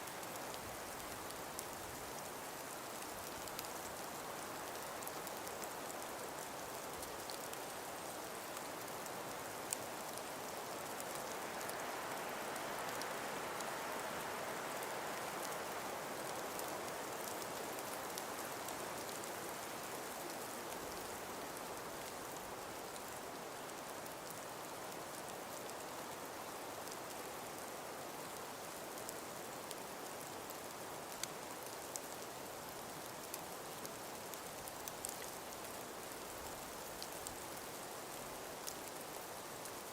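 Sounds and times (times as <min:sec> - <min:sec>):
light ticks: 0:00.1 - 0:04.0, 0:29.0 - 0:32.2, 0:32.8 - 0:37.5.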